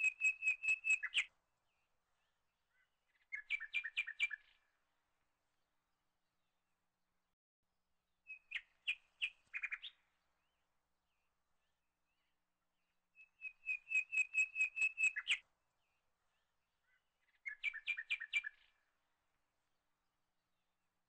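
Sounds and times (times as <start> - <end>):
bird chirping rapidly: 13.4 - 15.4.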